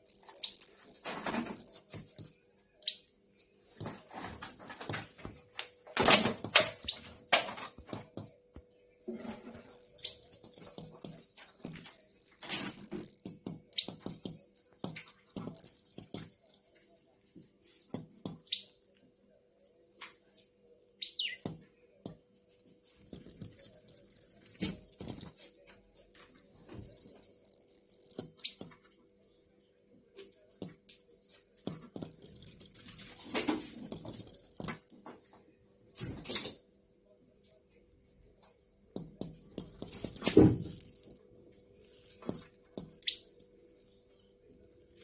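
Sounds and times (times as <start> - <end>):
high bird chirps: 0.2 - 0.8, 2.8 - 3.1, 9.9 - 10.3, 13.8 - 14.0, 18.5 - 18.8, 21.0 - 21.5, 28.4 - 28.7, 43.0 - 43.4
sharp taps and knocks: 10.0 - 16.4.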